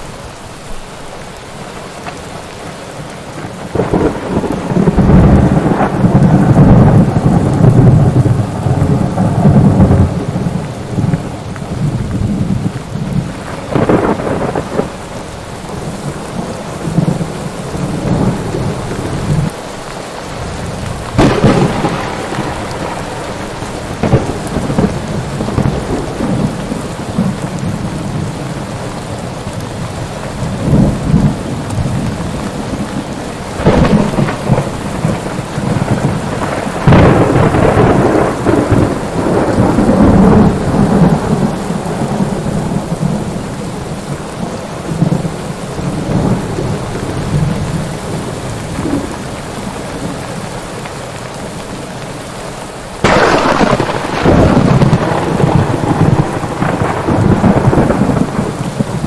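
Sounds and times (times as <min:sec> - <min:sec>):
steady rain: 0:00.0 - 0:59.0
rolling thunder: 0:03.4 - 0:19.6, 0:20.3 - 0:28.8, 0:29.8 - 0:49.3, 0:53.0 - 0:59.0
sharp thunderclaps: 0:03.6 - 0:15.0, 0:20.4 - 0:27.8, 0:33.5 - 0:43.4, 0:53.0 - 0:59.0.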